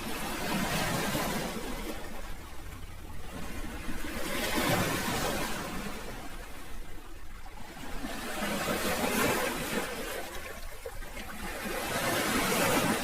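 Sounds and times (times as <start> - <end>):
sea waves washing in: 0.0 - 13.0.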